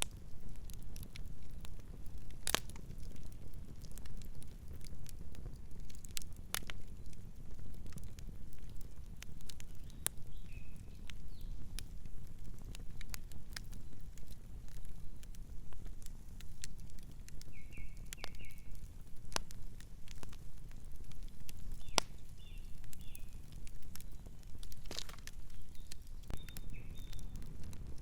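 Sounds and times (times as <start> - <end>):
campfire crackling and popping: 0.0 - 28.0
bird chirping: 17.5 - 18.7, 21.8 - 23.4, 25.5 - 27.4.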